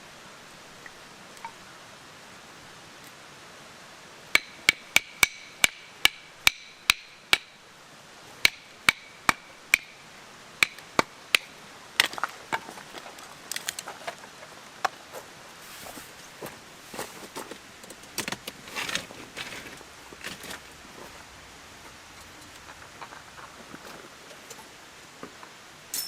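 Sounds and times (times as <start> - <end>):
hammer striking metal tent peg: 4.4 - 7.5, 8.4 - 9.9, 10.6 - 11.5.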